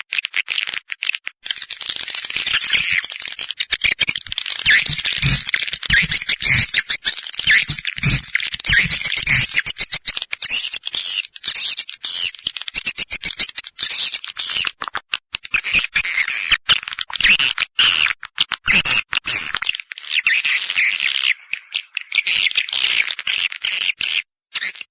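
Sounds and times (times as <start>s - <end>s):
swiftlets twittering and chirping: 2.2s - 14.7s
low thumps: 4.7s - 6.7s.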